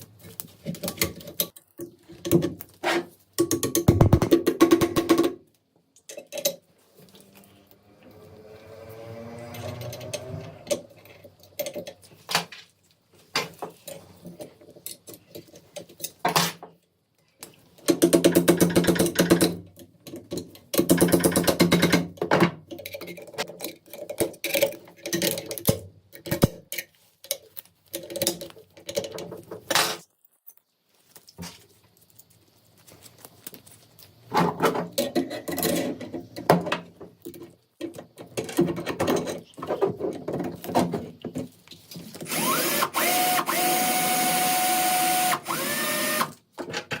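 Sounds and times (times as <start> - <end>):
metal parts clicking and knocking: 0.2 - 2.6, 9.7 - 12.4, 17.8 - 30.2.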